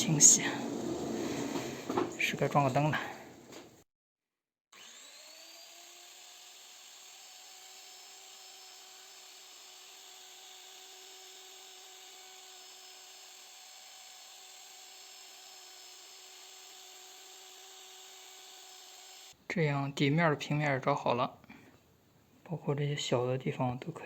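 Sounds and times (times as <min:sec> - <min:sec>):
trimmer router whining: 0:00.0 - 0:03.6, 0:04.8 - 0:19.4.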